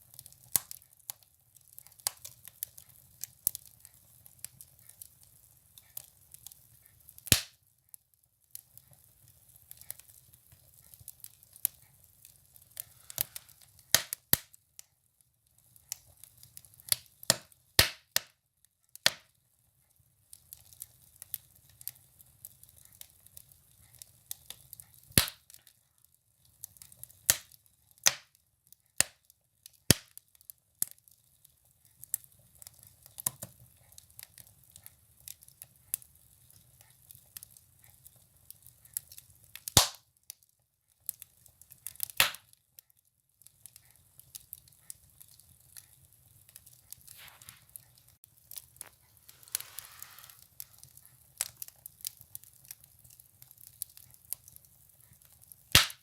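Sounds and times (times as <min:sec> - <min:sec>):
firewood crackling in a stove: 0:00.0 - 0:56.0
soft hiss: 0:47.1 - 0:48.0, 0:48.7 - 0:50.8.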